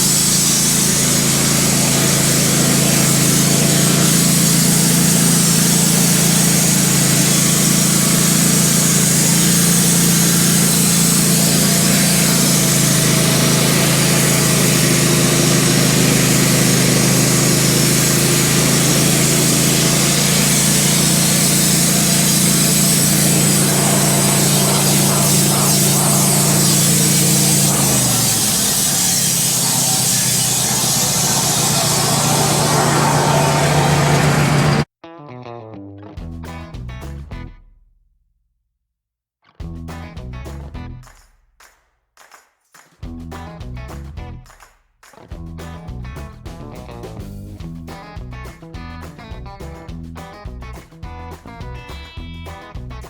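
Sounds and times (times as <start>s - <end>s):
band saw hissing through log: 0.0s - 34.9s
sawmill engine running under load: 0.0s - 34.9s.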